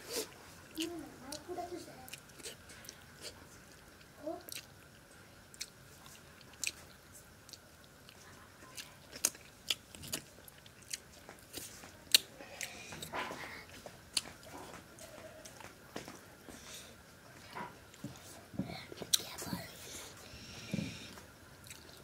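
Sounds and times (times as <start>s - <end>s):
chewing and lip smacking: 2.1s - 15.7s, 21.6s - 22.0s.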